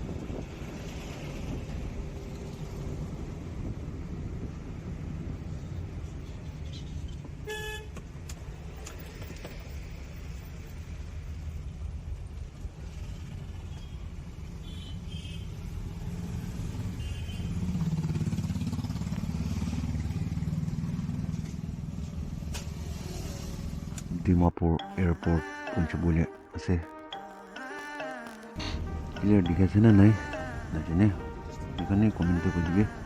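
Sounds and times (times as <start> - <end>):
highway traffic rumble: 0.0 - 24.2
vehicle horn: 7.5 - 7.9.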